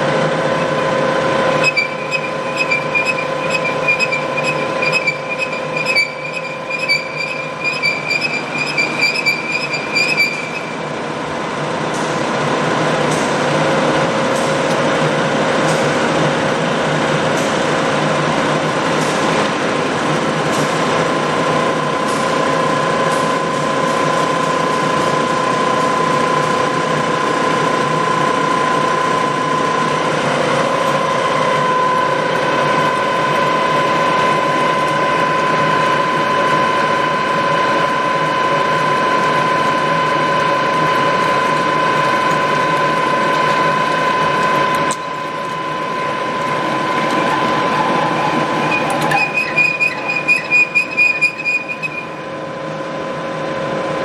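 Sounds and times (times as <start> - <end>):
drill machine whine: 0.4 - 11.1, 45.6 - 52.4
higher machine tone: 0.4 - 11.5, 45.1 - 52.6.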